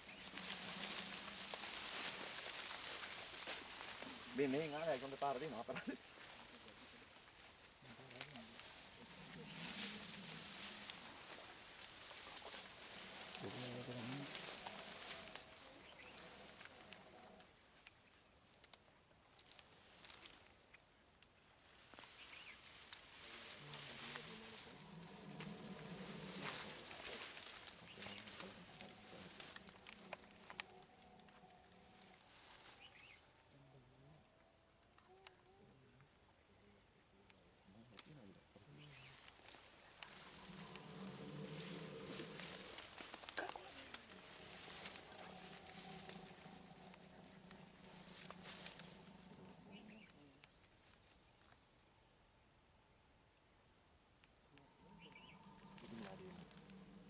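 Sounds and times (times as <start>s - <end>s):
rustling: 0.0s - 18.0s, 21.6s - 33.3s, 38.6s - 51.0s
insects droning: 0.0s - 57.0s.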